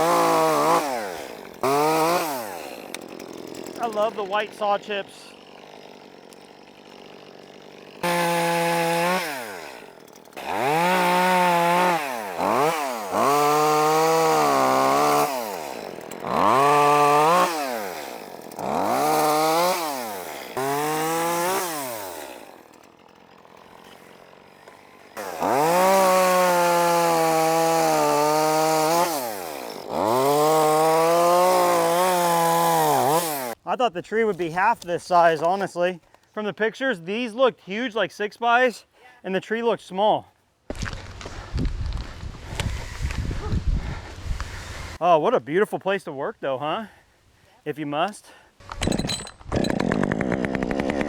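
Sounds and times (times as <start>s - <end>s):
chainsaw cutting wood: 0.0s - 33.6s, 40.7s - 45.0s, 48.6s - 51.0s.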